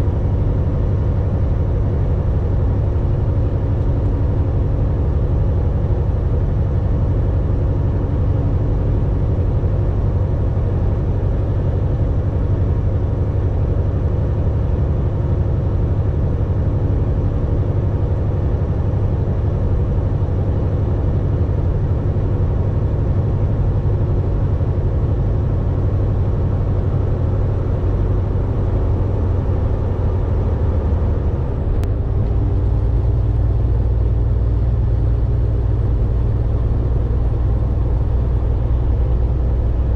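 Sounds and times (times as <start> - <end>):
road noise: 0.0 - 39.9
truck diesel engine running: 0.0 - 39.9.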